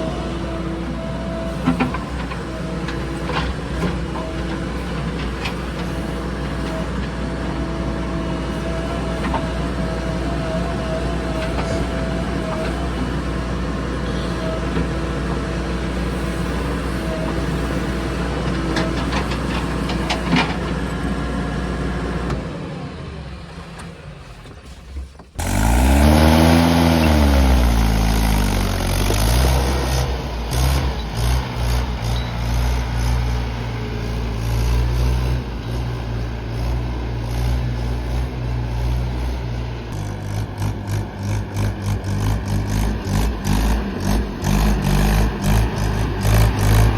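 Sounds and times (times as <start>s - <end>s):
heavy machinery diesel engine: 0.0s - 46.9s.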